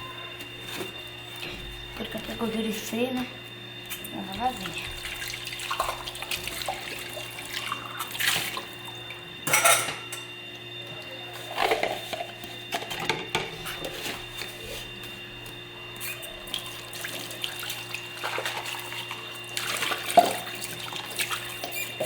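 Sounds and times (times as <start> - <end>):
dishes clinking and knocking: 9.4 - 10.3, 11.6 - 13.6.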